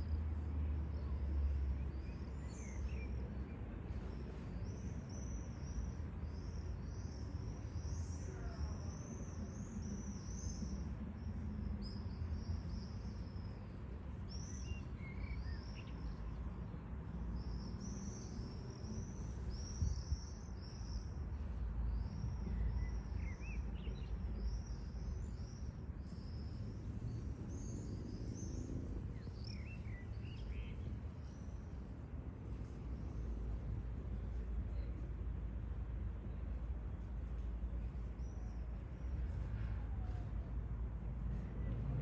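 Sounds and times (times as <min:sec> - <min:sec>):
small birds chirping: 0:00.9 - 0:31.7.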